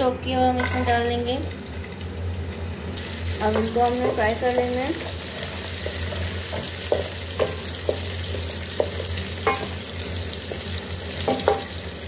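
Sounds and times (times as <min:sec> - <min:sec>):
steady low hum: 0:00.0 - 0:11.0
food sizzling in hot oil: 0:00.6 - 0:12.0
wooden spatula knocking on pan: 0:05.8 - 0:08.1, 0:08.7 - 0:09.8, 0:11.2 - 0:11.7.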